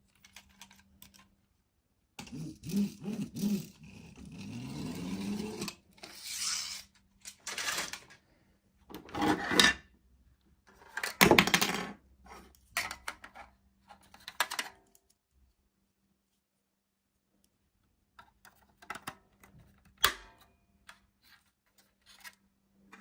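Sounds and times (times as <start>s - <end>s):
toys rubbing and clicking: 2.2s - 7.0s.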